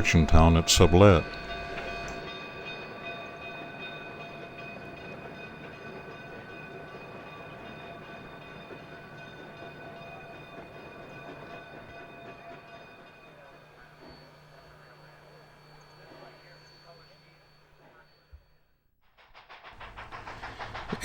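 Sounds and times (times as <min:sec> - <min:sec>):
steam train rumbling: 0:00.0 - 0:16.6, 0:19.0 - 0:21.0.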